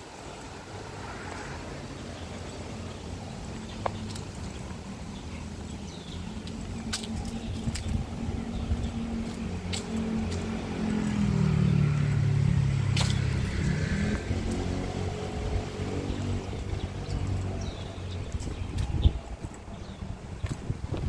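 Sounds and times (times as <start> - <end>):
vehicle engine passing by: 5.9 - 20.2.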